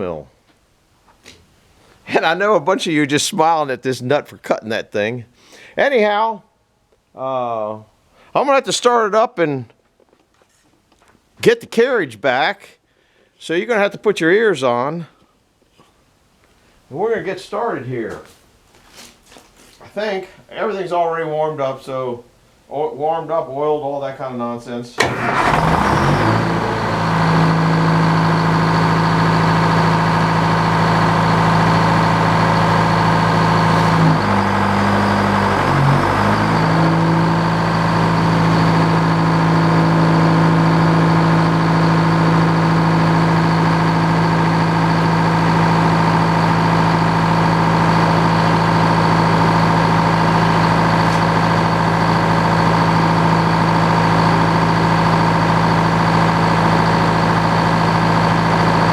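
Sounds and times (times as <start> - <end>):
sawmill engine running: 25.0 - 58.9.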